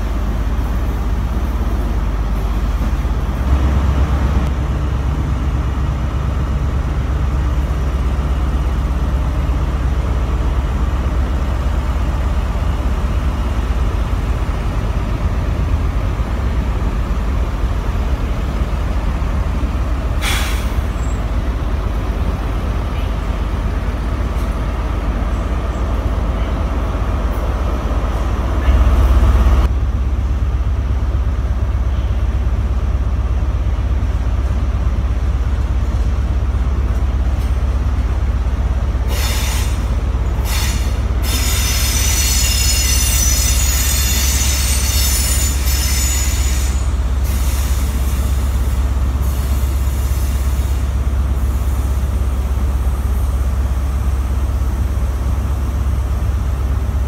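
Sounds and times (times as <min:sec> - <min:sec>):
diesel trains rumbling: 0:00.0 - 0:57.0
train wheels squealing: 0:39.1 - 0:48.4.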